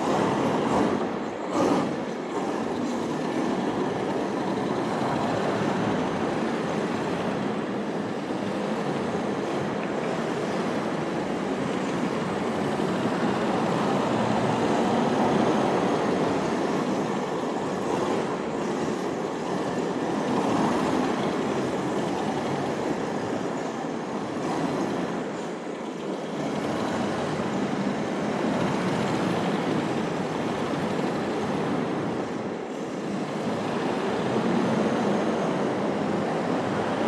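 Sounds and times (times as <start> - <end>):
rc car tyres and drivetrain rushing: 0.0 - 23.3.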